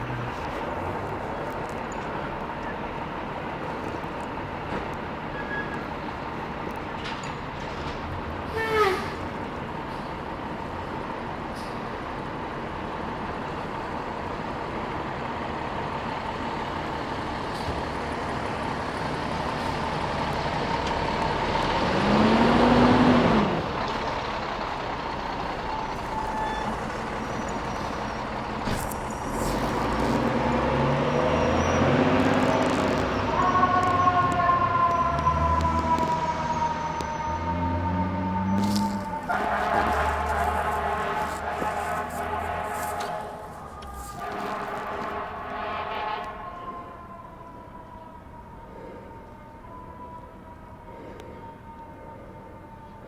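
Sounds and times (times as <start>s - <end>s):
diesel engine pulling under load: 0.0s - 53.0s
fire engine siren wailing: 0.0s - 53.0s
traffic noise: 0.0s - 53.0s
low horn blast: 25.7s - 35.7s, 37.4s - 47.0s.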